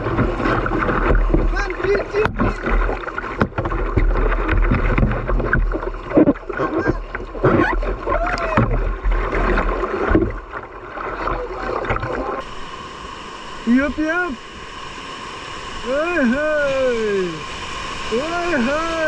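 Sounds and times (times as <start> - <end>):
short water splashes: 0.0 - 12.4
whitewater rapids rushing: 15.7 - 19.0.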